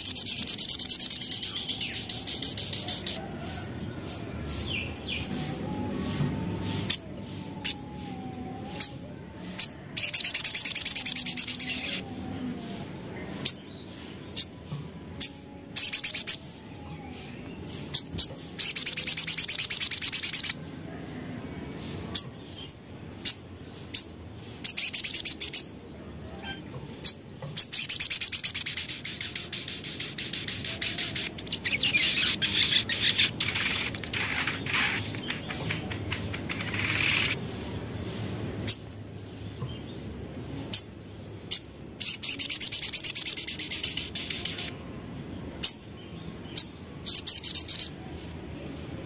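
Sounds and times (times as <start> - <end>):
bird sharp chips: 27.8 - 37.4
bird rattling trill: 29.0 - 37.4.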